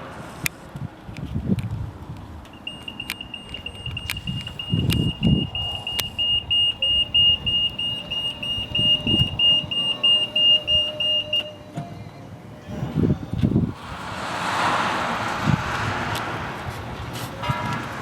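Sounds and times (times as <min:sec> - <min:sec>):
high electronic beeping: 0:02.6 - 0:11.5
dull low thumps: 0:03.5 - 0:10.0.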